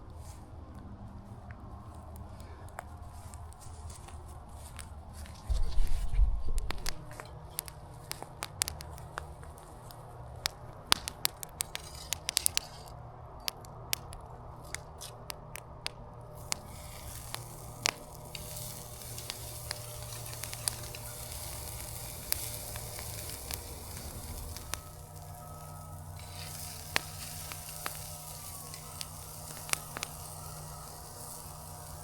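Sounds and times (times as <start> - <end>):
fire crackling and popping: 1.4 - 32.0
food sizzling on grill: 16.4 - 32.0.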